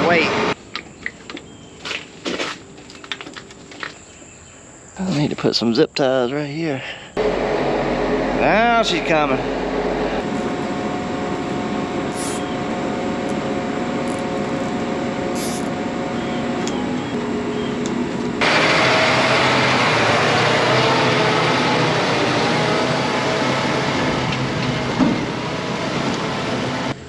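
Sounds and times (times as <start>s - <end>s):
rushing vehicle noise: 0.0s - 0.6s, 7.2s - 27.0s
vehicle engine running: 0.0s - 0.6s, 7.2s - 27.0s.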